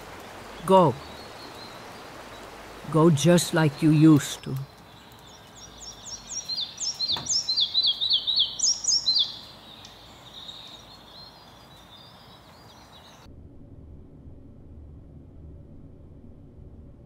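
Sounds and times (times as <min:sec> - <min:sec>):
faint steady hiss: 0:00.0 - 0:13.3
bird singing high falling notes: 0:00.3 - 0:13.3.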